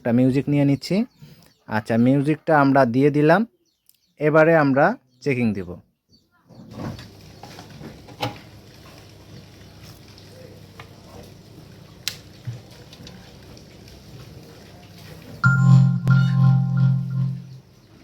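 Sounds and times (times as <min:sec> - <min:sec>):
music from speaker: 0:15.4 - 0:17.5
speaker hiss and hum: 0:15.4 - 0:17.6.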